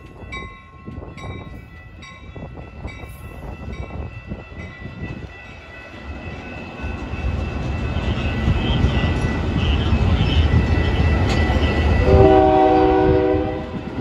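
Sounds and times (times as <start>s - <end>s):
train passing rumble: 0.0s - 14.0s
multi-note train air horn: 12.0s - 13.9s.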